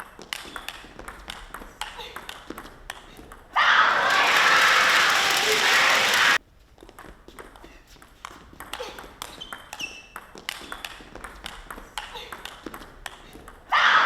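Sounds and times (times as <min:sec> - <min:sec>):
crowd cheering and clapping: 0:03.6 - 0:06.4
shoe squeaks on floor: 0:09.2 - 0:10.8.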